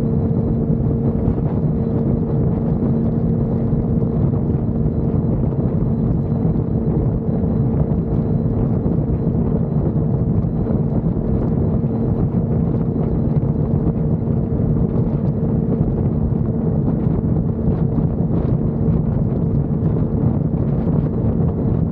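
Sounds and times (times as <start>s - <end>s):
wind rushing over microphone: 0.0s - 21.9s.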